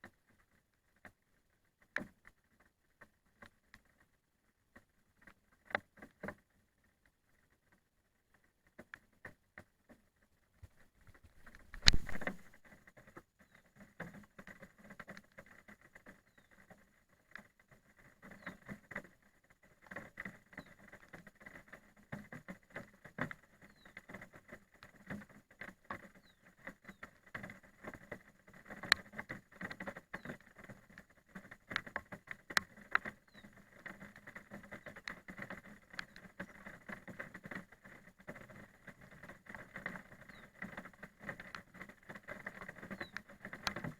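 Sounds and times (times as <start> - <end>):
rain pattering: 10.6 - 43.9.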